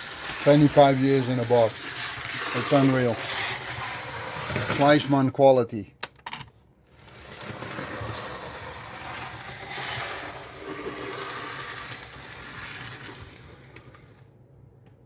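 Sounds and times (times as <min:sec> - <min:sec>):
model train wheels clattering: 0:00.0 - 0:05.0.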